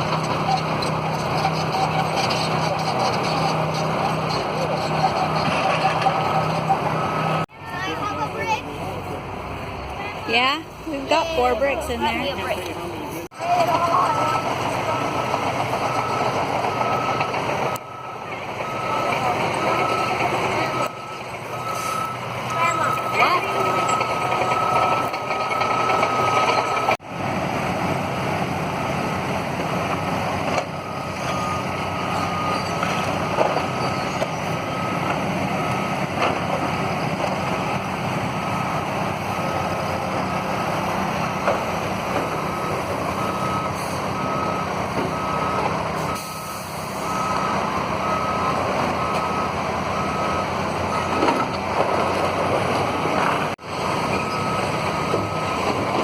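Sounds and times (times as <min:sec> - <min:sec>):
heavy machine engine running: 0:00.0 - 0:56.0
backup alarm beeping: 0:13.9 - 0:27.0, 0:42.3 - 0:51.5.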